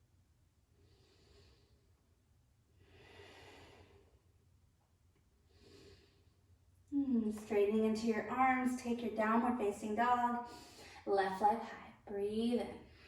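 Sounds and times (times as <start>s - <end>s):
woman breathing faintly: 0.7s - 2.1s, 2.8s - 4.3s, 5.4s - 6.5s, 10.4s - 11.1s.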